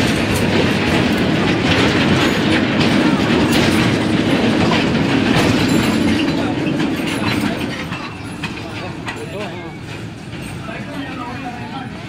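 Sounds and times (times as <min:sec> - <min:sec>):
train wheels clattering on track: 0:00.0 - 0:12.0.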